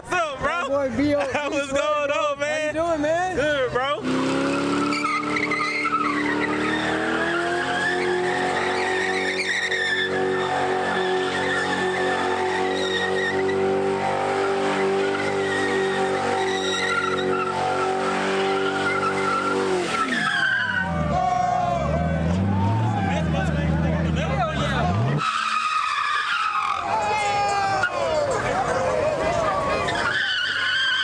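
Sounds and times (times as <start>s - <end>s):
car engine revving: 3.4s - 27.0s
tires squealing: 3.4s - 31.0s.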